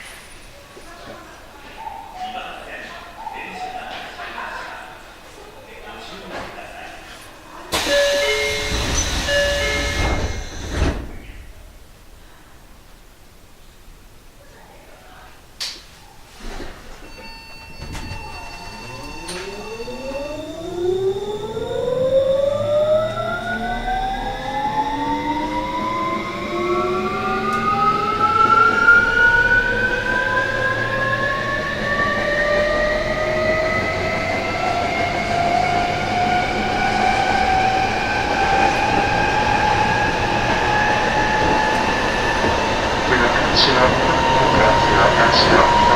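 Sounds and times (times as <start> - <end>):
train motors whining: 7.7 - 11.9, 17.8 - 45.9
rumble of train running: 7.8 - 12.1, 17.2 - 45.9.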